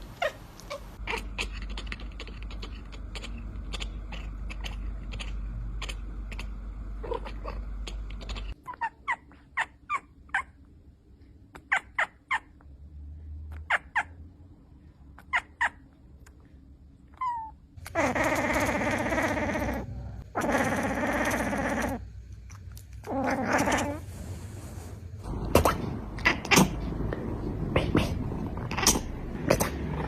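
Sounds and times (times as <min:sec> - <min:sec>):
cat chirping: 0:00.2 - 0:10.6, 0:11.5 - 0:12.7, 0:13.5 - 0:14.2, 0:15.2 - 0:16.3, 0:17.1 - 0:22.0, 0:25.4 - 0:27.0, 0:27.8 - 0:30.0
low rumble with clicks: 0:25.0 - 0:30.0.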